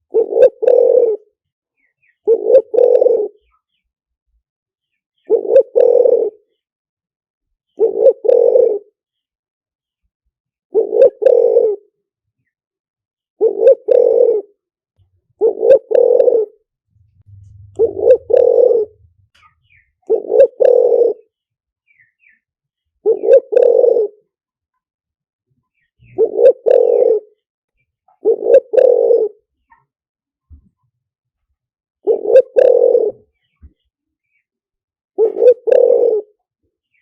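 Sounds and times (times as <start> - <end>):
dove cooing: 0.0 - 1.3, 2.2 - 3.5, 5.2 - 6.5, 7.8 - 9.0, 10.7 - 11.9, 13.4 - 14.6, 15.4 - 21.3, 23.0 - 24.3, 26.0 - 27.4, 28.2 - 29.5, 32.0 - 33.8, 35.2 - 36.5.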